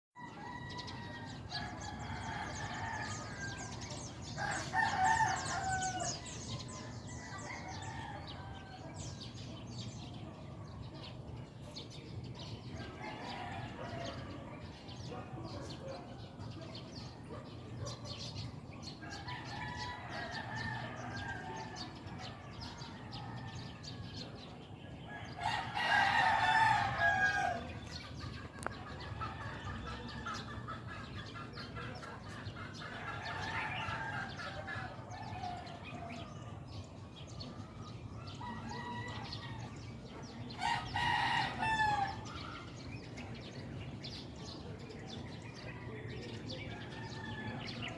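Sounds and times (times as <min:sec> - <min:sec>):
rooster crowing: 0:00.2 - 0:09.2, 0:25.1 - 0:27.8, 0:40.5 - 0:42.4
chickens clucking: 0:26.6 - 0:47.6.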